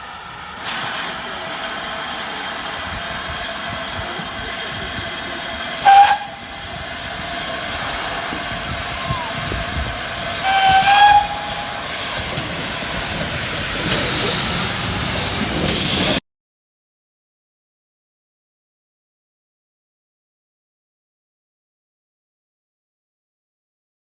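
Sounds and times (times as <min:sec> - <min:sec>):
steam whistle blasts: 0:00.0 - 0:13.0
steam hissing: 0:00.0 - 0:16.2.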